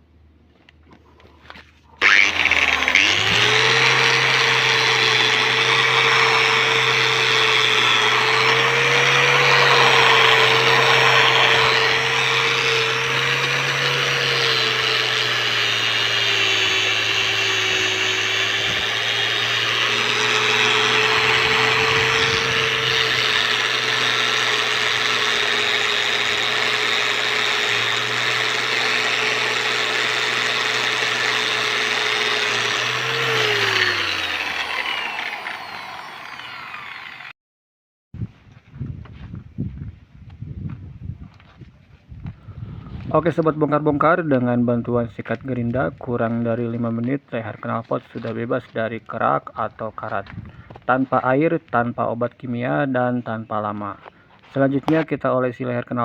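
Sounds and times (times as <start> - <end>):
angle grinder whining: 2.0 - 37.4.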